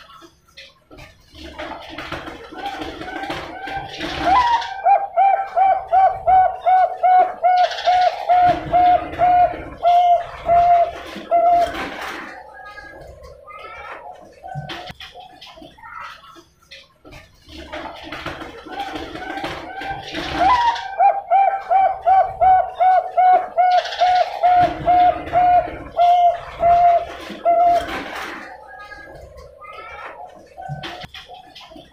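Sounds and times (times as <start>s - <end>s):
dove cooing: 2.6s - 14.9s, 18.7s - 31.2s.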